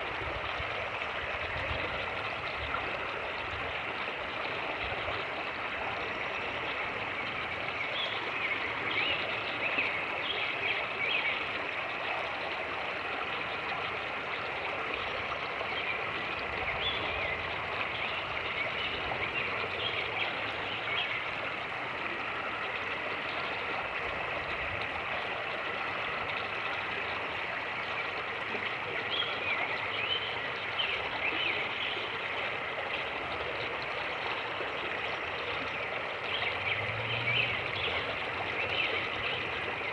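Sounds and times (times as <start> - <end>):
creek rushing: 12.6 - 39.9.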